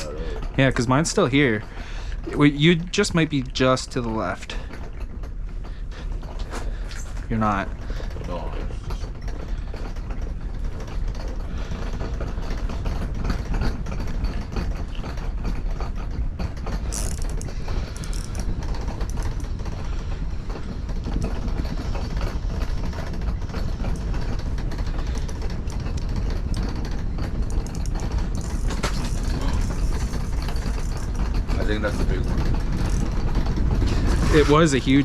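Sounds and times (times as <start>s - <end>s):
rapid mechanical clicking and rattling: 0.0s - 35.0s
wind buffeting microphone: 7.5s - 35.0s.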